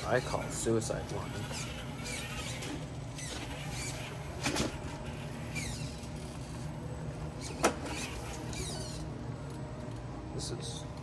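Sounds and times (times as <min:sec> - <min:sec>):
rc car motor whining: 0:00.0 - 0:06.7, 0:07.3 - 0:09.1.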